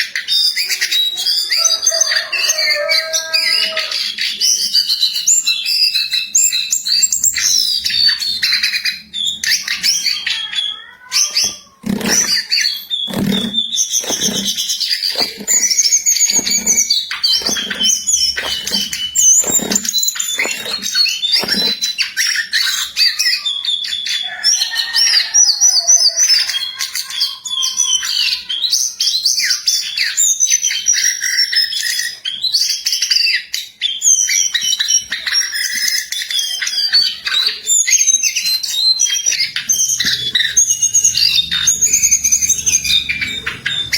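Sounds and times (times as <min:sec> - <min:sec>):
dull thumps: 0:13.1 - 0:15.7, 0:17.4 - 0:21.8.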